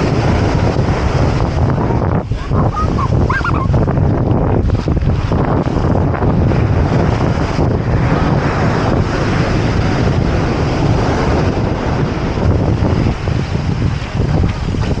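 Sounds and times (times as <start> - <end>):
ocean surf: 0.0 - 15.0
wind buffeting microphone: 0.0 - 15.0.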